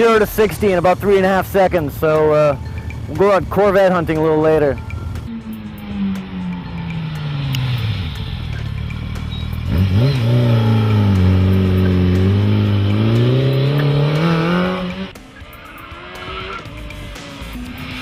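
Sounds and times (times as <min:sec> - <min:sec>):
engine revving: 0:04.8 - 0:18.0.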